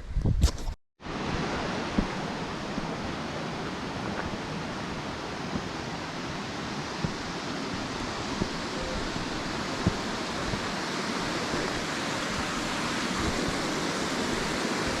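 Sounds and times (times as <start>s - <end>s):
waterfall roaring: 1.1s - 15.0s.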